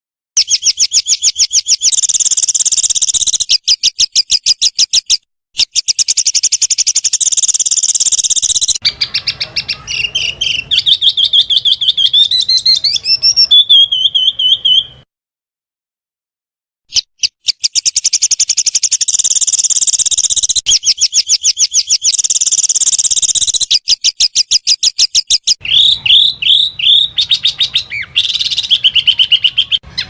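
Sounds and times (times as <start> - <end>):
small songbird singing: 0.4 - 15.0, 16.9 - 30.0.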